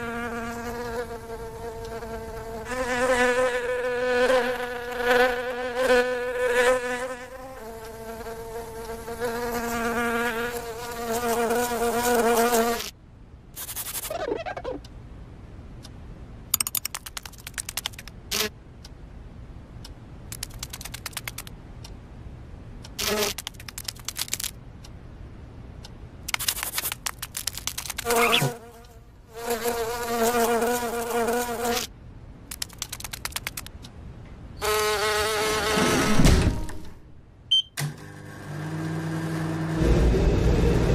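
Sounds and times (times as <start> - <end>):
insect wings buzzing: 0.0 - 12.9, 16.6 - 18.5, 20.3 - 21.5, 23.0 - 24.6, 26.3 - 31.9, 32.5 - 33.7
low background hum: 0.0 - 40.9
rapid insect clicking: 13.6 - 14.2, 16.5 - 18.5, 20.3 - 21.5, 23.0 - 24.6, 26.2 - 31.8, 32.5 - 33.8.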